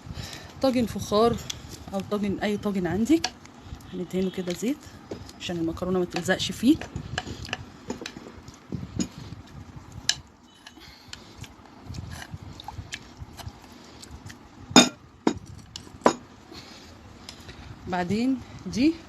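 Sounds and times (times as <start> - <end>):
dishes and utensils clinking: 14.8 - 16.2.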